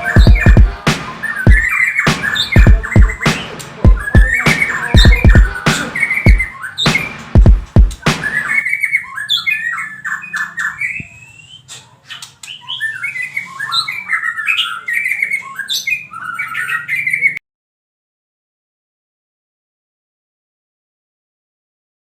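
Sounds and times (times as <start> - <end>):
bird singing whistled phrases: 0.0 - 7.1, 8.0 - 17.4
bird harsh chattering: 0.0 - 17.4.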